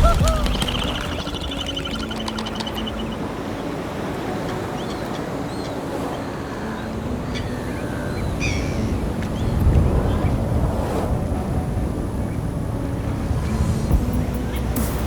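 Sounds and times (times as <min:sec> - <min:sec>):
short bird calls: 0:00.0 - 0:03.2
sea noise: 0:00.0 - 0:15.0
wind: 0:00.0 - 0:15.0.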